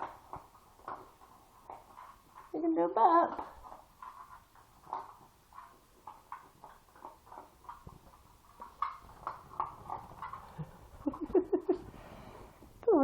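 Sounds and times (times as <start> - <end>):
dog mouth sounds: 0.0 - 12.0.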